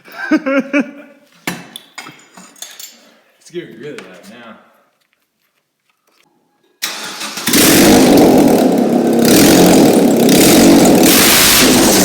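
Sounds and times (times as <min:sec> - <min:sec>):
engine cranking: 0:06.8 - 0:12.0
loud car engine running: 0:07.4 - 0:12.0.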